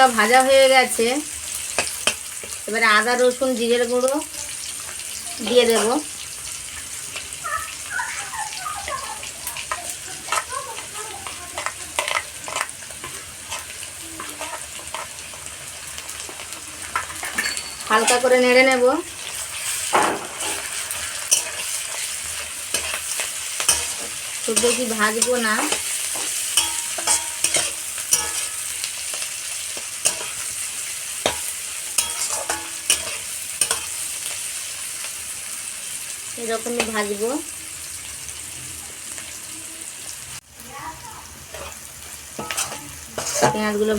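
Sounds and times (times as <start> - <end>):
onions sizzling in oil: 0.0 - 43.9
spatula scraping a pan: 9.6 - 15.6, 16.2 - 34.4, 41.5 - 43.9.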